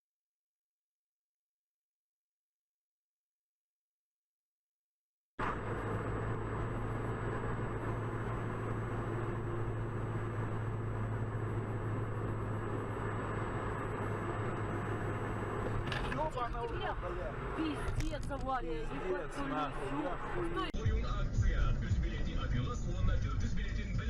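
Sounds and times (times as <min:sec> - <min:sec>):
vehicle engine and road noise: 0:05.4 - 0:24.0.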